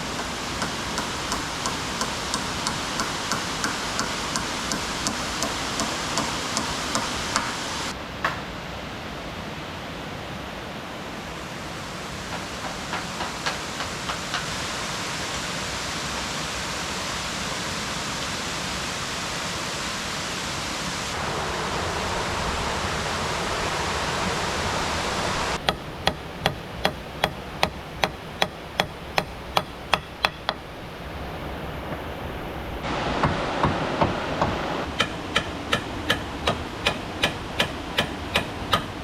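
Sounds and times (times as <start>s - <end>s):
sharp evenly spaced knocks: 0.0s - 7.9s, 12.4s - 14.5s, 25.6s - 30.9s, 34.0s - 39.0s
rushing water: 0.0s - 39.0s.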